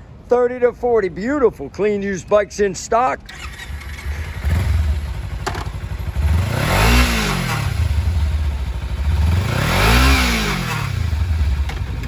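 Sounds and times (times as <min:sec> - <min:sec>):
motorcycle engine idling and revving: 0:03.3 - 0:12.0.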